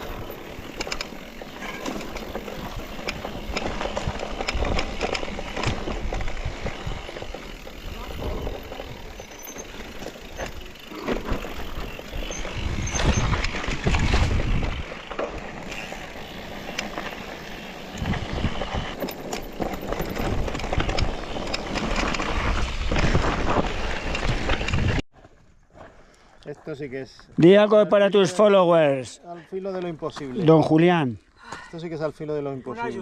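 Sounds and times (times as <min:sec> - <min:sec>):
bike rattles and clicks: 0:00.0 - 0:25.0
mountain bike on dirt trail: 0:00.0 - 0:31.9.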